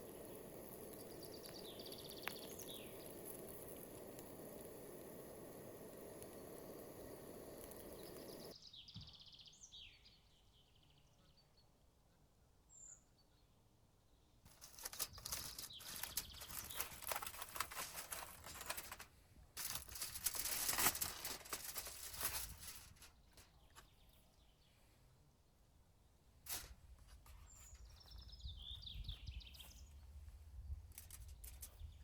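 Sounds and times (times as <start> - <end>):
bird chirps: 0.0 - 4.7, 6.7 - 13.6, 14.9 - 17.2, 27.4 - 30.0
close-up crackling and rustling: 0.0 - 8.6, 14.5 - 24.2, 26.4 - 28.3, 29.5 - 32.0.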